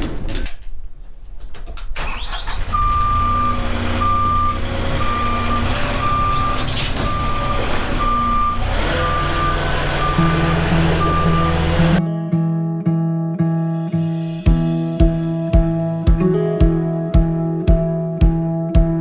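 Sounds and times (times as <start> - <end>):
engine droning: 2.0 - 12.0
reversing alarm beeping: 2.4 - 12.0.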